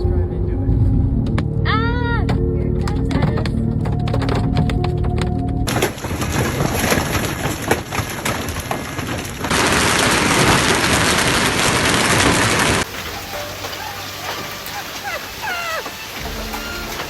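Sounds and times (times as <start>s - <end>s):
hailstones pelting a car: 2.3s - 17.0s.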